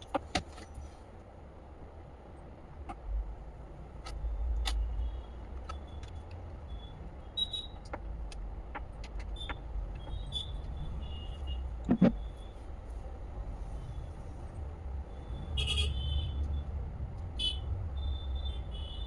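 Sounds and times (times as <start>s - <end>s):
light clicks and taps: 7.8s - 10.2s
steady low rumble: 9.6s - 18.8s.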